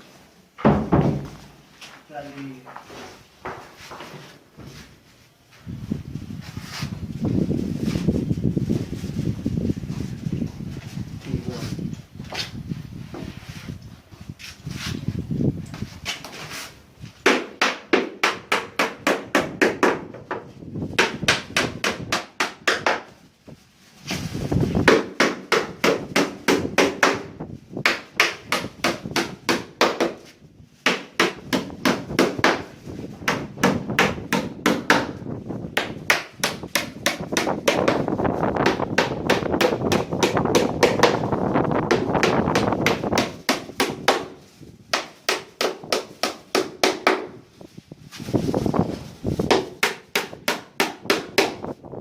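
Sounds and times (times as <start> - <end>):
hammer striking wood: 17.2 - 20.4, 21.0 - 23.1, 24.8 - 27.2, 27.8 - 35.2, 35.8 - 41.2, 44.9 - 47.3, 49.5 - 51.6.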